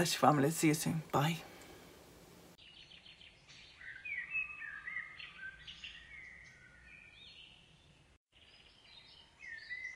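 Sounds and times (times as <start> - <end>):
faint outdoor hiss: 0.0 - 9.9
birds chirping and whistling: 2.6 - 9.9.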